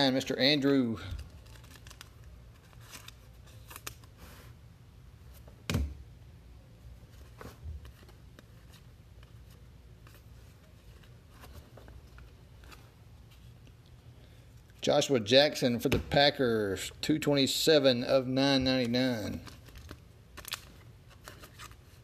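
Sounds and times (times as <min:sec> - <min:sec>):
low room hum: 0:00.0 - 0:22.0
cards rustling: 0:00.9 - 0:04.4, 0:18.6 - 0:22.0.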